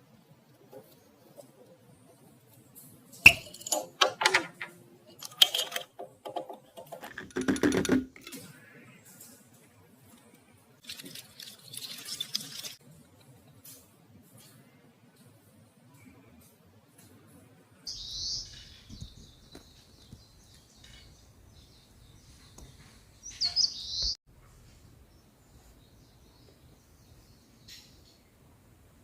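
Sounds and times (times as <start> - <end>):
clacks and rattle: 3.4 - 8.4.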